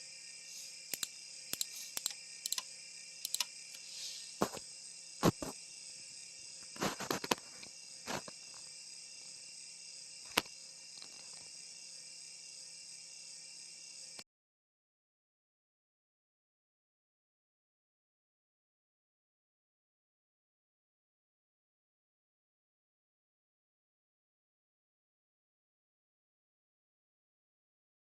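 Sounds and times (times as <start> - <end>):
high-pitched hiss: 0.0 - 14.2
keyboard and mouse clicks: 0.9 - 3.8.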